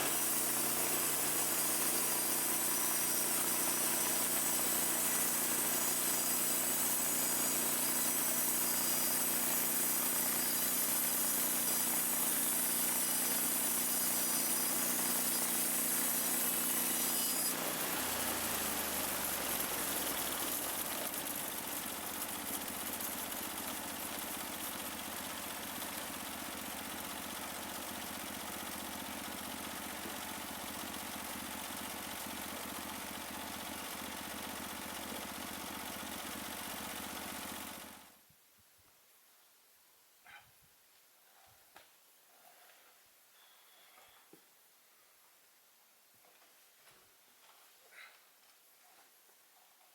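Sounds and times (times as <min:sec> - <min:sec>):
sawmill gas engine running: 0:00.0 - 0:38.1.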